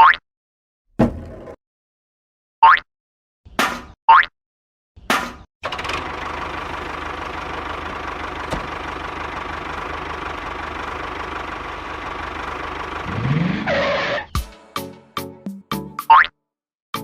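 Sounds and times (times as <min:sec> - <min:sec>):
tractor engine idling and revving: 0:05.6 - 0:14.2.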